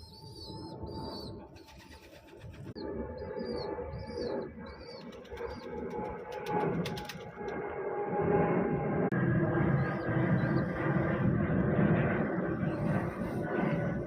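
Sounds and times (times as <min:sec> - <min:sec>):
pigeons cooing: 0:00.0 - 0:07.3.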